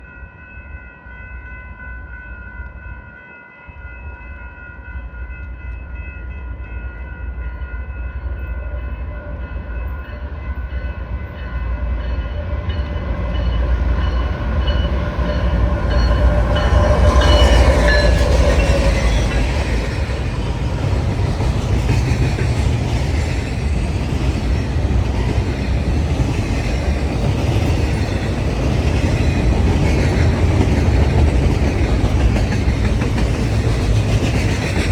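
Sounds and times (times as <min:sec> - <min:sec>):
rail cars clickety-clack: 0:00.0 - 0:34.9.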